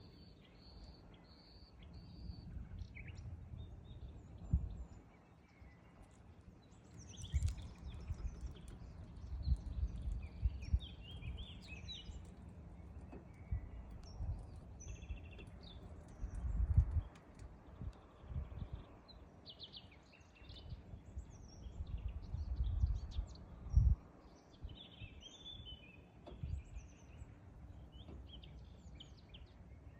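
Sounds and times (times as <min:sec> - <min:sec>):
songbirds chirping: 0:00.0 - 0:29.9
low rumbling bumps: 0:07.0 - 0:17.2.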